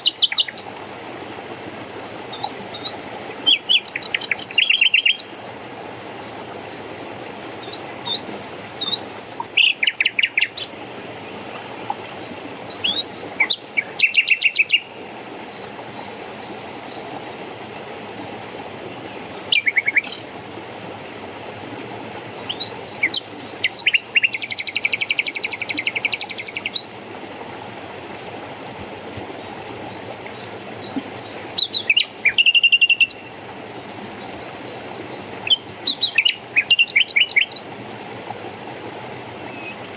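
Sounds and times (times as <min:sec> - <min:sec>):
running water: 0:00.0 - 0:39.9
songbirds chirping and trilling: 0:02.3 - 0:05.3, 0:07.6 - 0:20.4, 0:22.4 - 0:26.9, 0:29.4 - 0:37.8.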